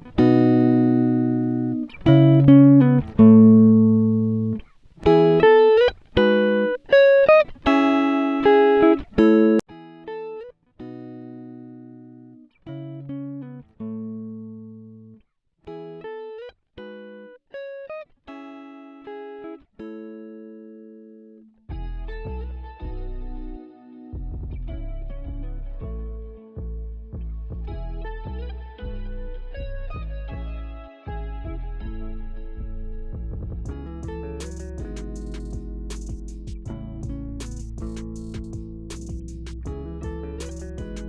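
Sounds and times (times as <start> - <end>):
plucked guitar-like tune: 0.0 - 41.0.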